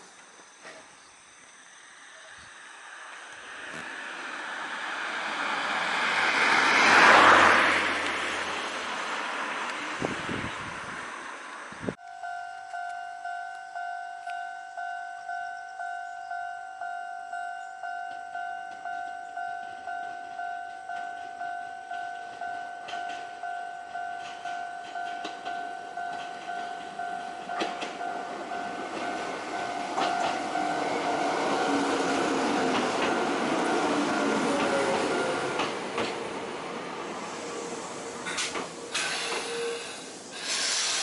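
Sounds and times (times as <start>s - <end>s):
approaching train: 0.0s - 41.0s
level crossing warning bell: 12.0s - 35.7s.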